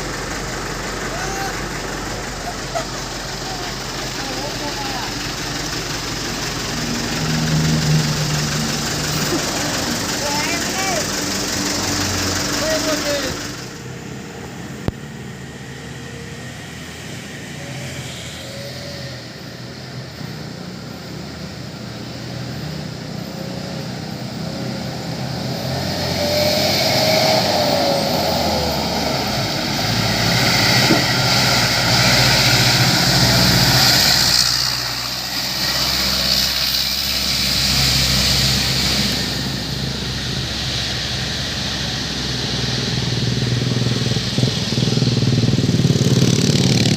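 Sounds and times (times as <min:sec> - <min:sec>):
truck diesel engine passing: 0:00.0 - 0:46.9
hiss: 0:24.8 - 0:46.8.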